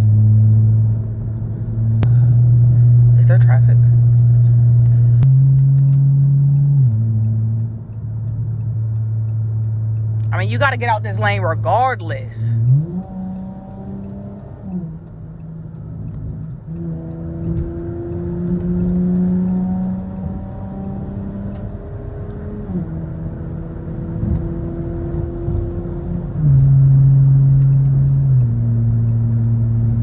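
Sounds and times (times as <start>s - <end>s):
car engine from inside car: 0.0s - 30.0s.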